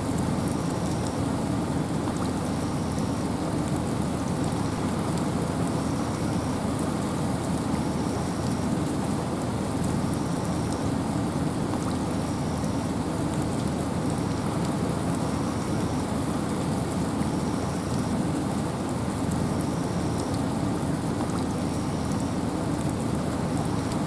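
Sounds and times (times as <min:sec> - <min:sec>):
rain: 0:00.0 - 0:24.0.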